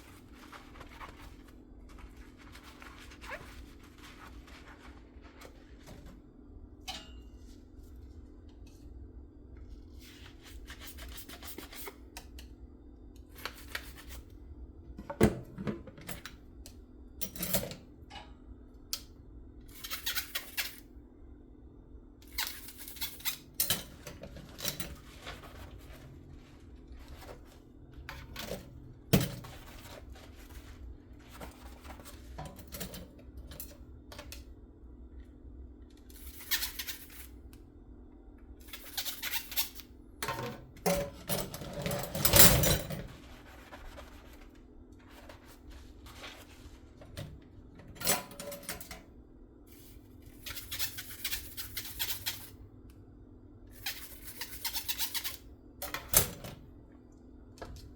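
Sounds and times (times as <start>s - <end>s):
dishes clinking: 6.8s - 7.5s.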